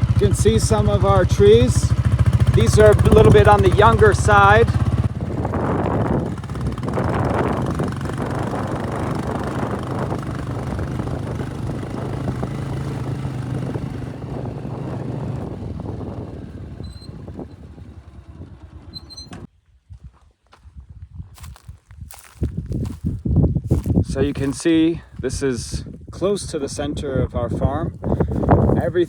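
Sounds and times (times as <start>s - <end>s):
road noise on dirt track: 0.0s - 19.5s, 21.4s - 29.0s
vehicle engine running: 0.0s - 19.5s.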